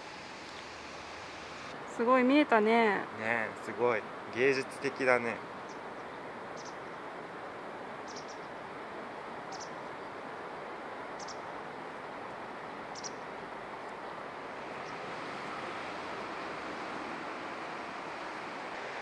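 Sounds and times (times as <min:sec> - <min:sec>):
small bird chirping: 0:05.7 - 0:06.8, 0:08.0 - 0:08.5, 0:09.5 - 0:09.8, 0:11.2 - 0:11.4, 0:12.9 - 0:13.2.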